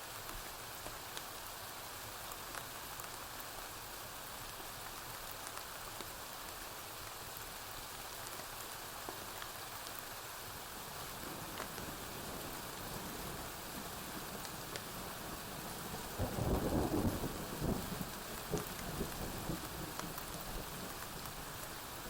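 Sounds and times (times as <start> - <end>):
steady rain falling: 0.0 - 22.0
wood fire crackling: 10.8 - 15.0.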